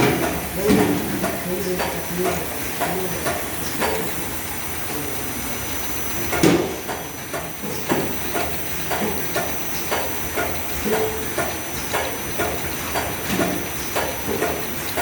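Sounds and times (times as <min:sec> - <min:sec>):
packing machine clacking: 0:00.0 - 0:04.2.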